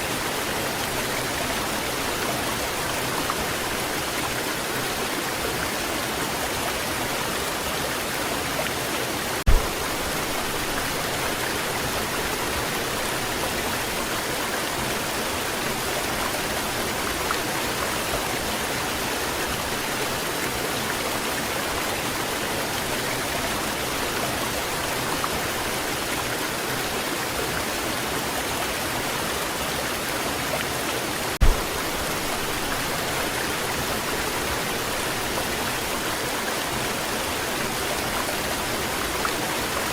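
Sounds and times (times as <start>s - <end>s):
waterfall rushing: 0.0s - 39.9s
low thumps: 9.5s - 10.7s, 31.4s - 32.6s.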